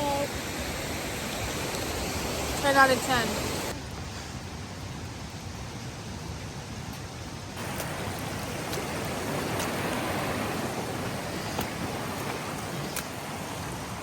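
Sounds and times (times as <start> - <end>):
waterfall rushing: 0.0 - 3.8, 7.6 - 14.0.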